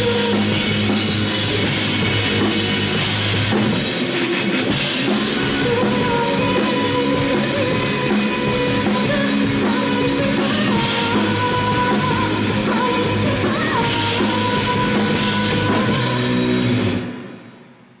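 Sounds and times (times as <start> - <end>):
person singing: 0.0 - 1.2, 5.0 - 16.7
guitars: 0.0 - 17.4
rock band playing live: 0.0 - 17.8
drums: 0.0 - 18.0.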